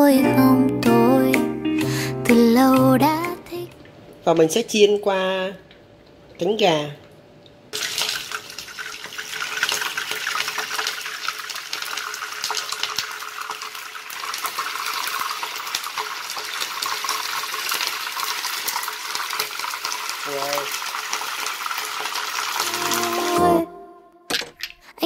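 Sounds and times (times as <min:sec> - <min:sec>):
chicken frying with popping oil: 0:07.7 - 0:22.7.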